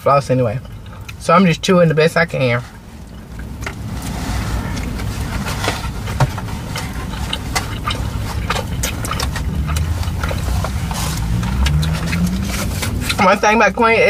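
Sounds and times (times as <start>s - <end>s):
low car cabin rumble: 0.0s - 14.0s
chewing and mouth sounds: 0.3s - 13.9s.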